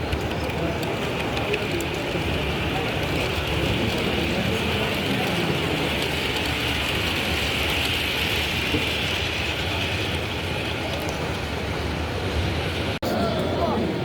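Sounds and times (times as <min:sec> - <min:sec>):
hall background noise: 0:00.0 - 0:14.0
model train running on track: 0:00.0 - 0:14.0.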